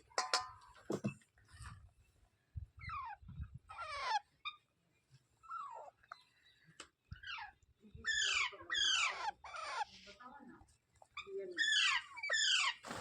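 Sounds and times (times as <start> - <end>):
parakeets screeching: 2.8 - 4.6, 7.2 - 10.0, 11.2 - 12.8.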